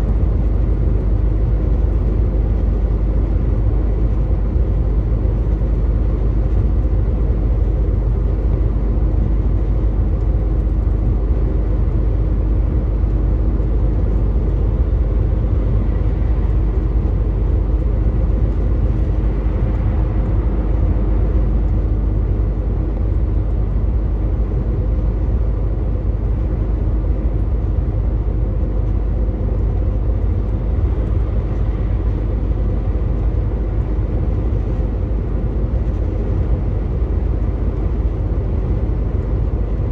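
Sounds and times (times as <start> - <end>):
road and tyre rumble: 0.0 - 39.9.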